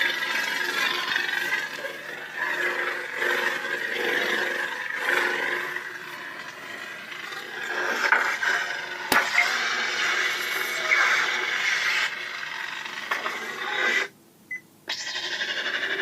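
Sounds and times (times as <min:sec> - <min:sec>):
crackling lightsaber hum: 0:00.0 - 0:14.1.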